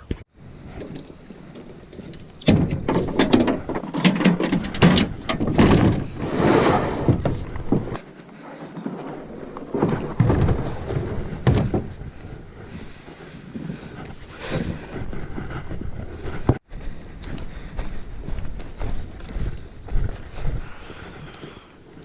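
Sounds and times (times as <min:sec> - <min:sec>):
plastic kayak being handled: 0:00.8 - 0:12.4.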